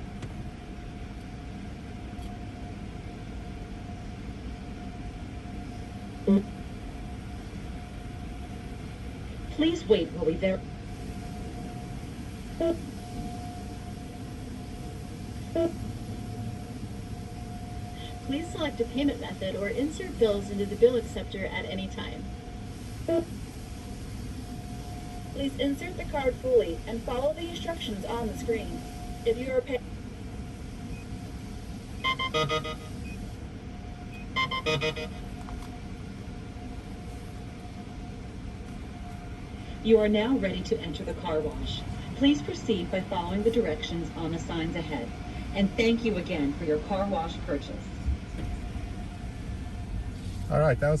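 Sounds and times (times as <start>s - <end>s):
faint steady whine: 0.0s - 51.0s
payment kiosk beeping: 32.0s - 33.3s, 34.1s - 35.4s.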